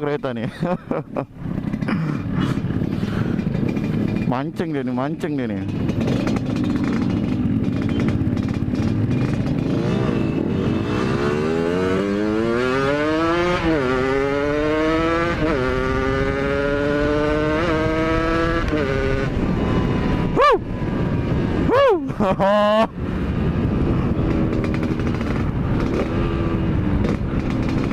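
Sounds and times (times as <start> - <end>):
motorcycle accelerating: 0.6 - 27.9.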